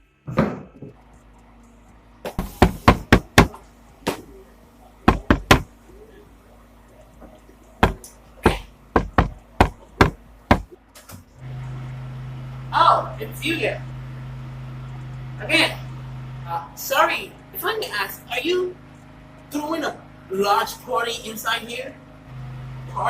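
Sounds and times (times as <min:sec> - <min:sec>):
sharp knocks and bangs: 0:02.3 - 0:04.3, 0:05.1 - 0:05.7, 0:07.8 - 0:10.8.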